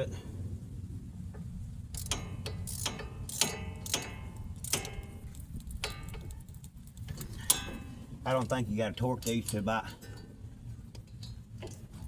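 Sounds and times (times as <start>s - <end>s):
wrench clicking on bolt: 2.0s - 7.7s.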